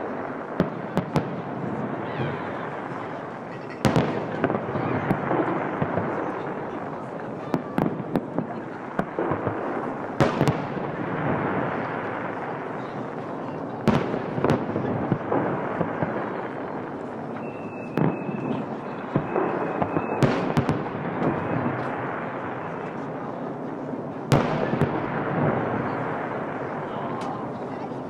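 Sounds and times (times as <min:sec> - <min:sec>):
fireworks bursting: 0:00.0 - 0:28.0
high whistle: 0:17.4 - 0:20.2.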